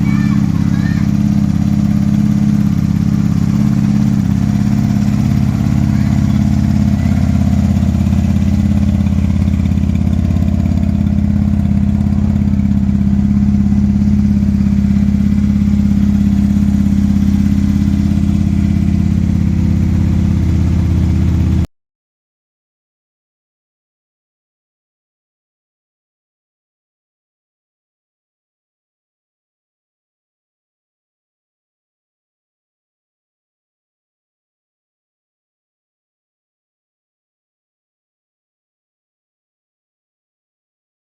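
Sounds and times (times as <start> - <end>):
motorcycle engine idling: 0.0 - 21.7.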